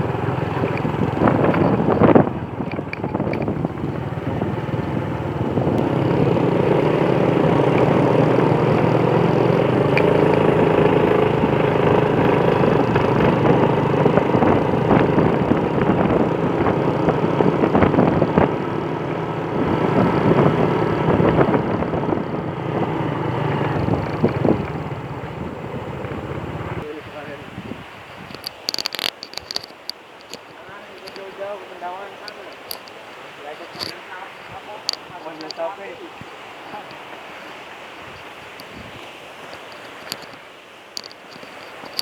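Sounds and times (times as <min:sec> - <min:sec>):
vehicle engine running: 0:00.0 - 0:26.8
road and wind noise: 0:00.0 - 0:42.0.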